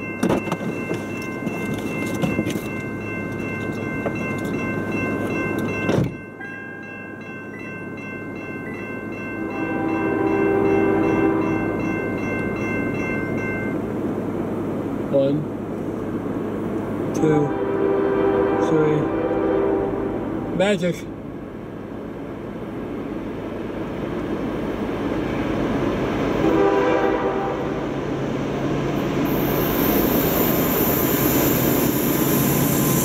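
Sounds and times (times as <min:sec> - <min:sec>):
high-pitched tones: 0:00.0 - 0:13.8
diesel locomotive rumble: 0:00.0 - 0:33.0
train horn chord: 0:09.3 - 0:11.9, 0:17.2 - 0:20.8, 0:26.4 - 0:28.0.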